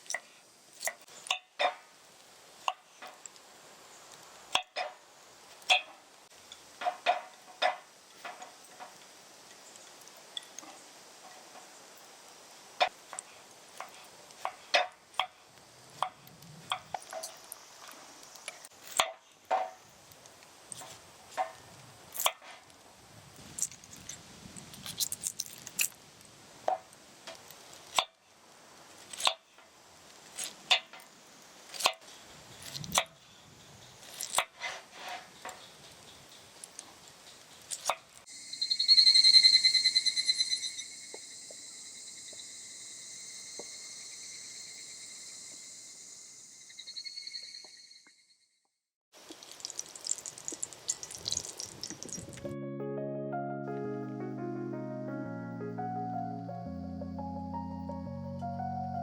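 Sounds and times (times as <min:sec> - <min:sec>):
insect pulsing buzz: 0:38.3 - 0:48.2.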